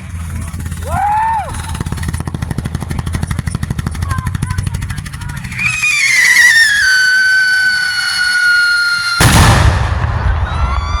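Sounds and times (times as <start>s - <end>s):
firework whistle: 5.5s - 11.0s
firework bang: 5.9s - 11.0s.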